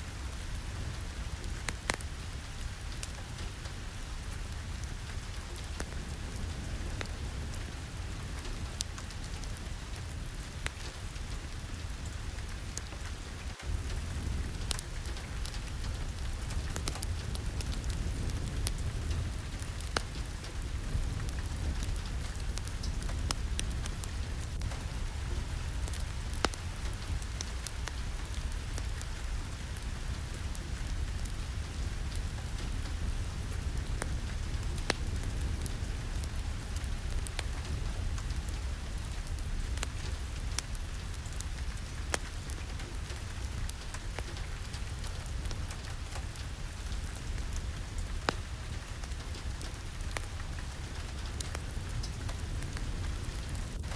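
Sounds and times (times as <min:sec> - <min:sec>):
fire crackling: 0:00.0 - 0:53.9
steady rain: 0:00.0 - 0:53.9.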